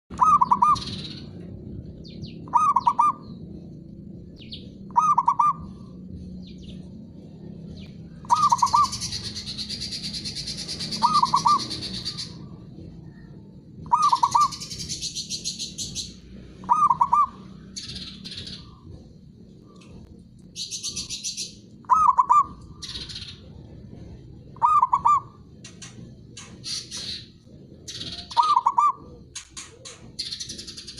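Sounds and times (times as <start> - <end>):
bird chattering: 0.1 - 1.5, 2.1 - 3.4, 4.4 - 6.8, 8.2 - 12.5, 13.8 - 18.9, 20.6 - 23.6, 24.5 - 30.9
dove cooing: 0.1 - 1.5, 2.4 - 3.6, 4.9 - 7.5, 8.2 - 17.7, 20.0 - 30.9.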